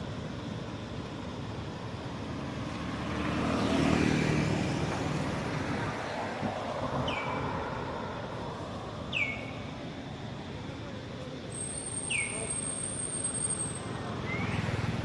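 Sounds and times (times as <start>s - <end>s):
vehicle passing by: 2.1s - 9.2s, 14.0s - 15.0s.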